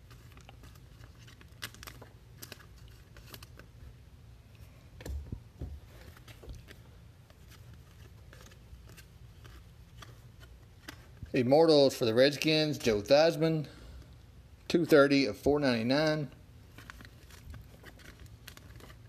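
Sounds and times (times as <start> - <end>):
cards clicking and rustling: 0.0 - 3.8, 6.0 - 11.2, 16.7 - 19.0
low steady hum: 0.0 - 19.0.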